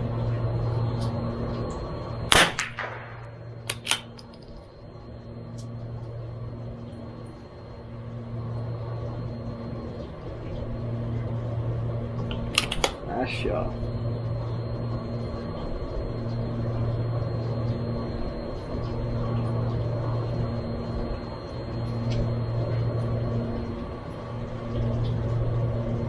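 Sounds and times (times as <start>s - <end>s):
steady low hum: 0.0s - 26.0s
rifle shot: 2.3s - 4.1s
rifle bolt clicks: 3.7s - 4.2s, 12.6s - 13.0s.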